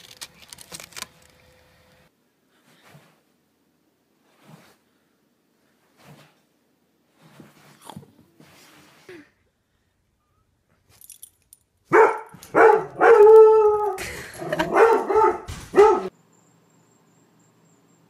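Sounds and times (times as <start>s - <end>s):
dog barking and yowling: 11.9s - 16.1s.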